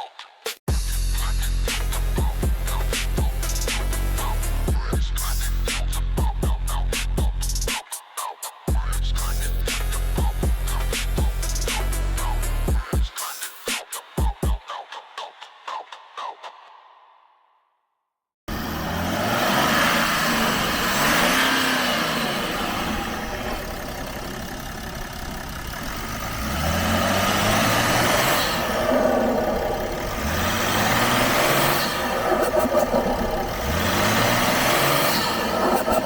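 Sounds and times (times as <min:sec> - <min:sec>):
diesel engine accelerating: 0:01.2 - 0:07.0, 0:09.2 - 0:12.8, 0:18.5 - 0:36.0.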